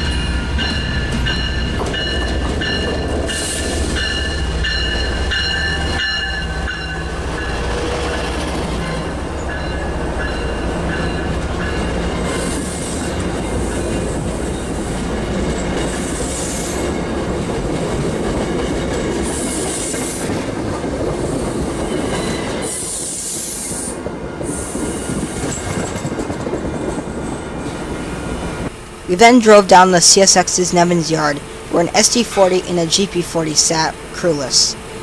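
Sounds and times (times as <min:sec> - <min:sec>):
train rumbling past: 0:00.0 - 0:35.0.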